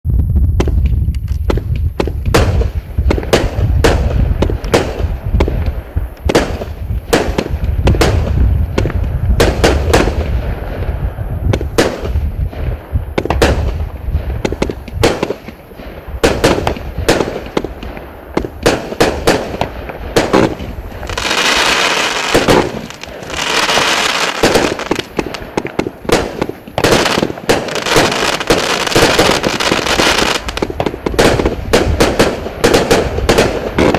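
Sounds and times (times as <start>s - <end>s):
low rumble: 0.0s - 15.0s
firework reports: 0.1s - 33.9s
firework crackling hiss: 0.2s - 33.9s.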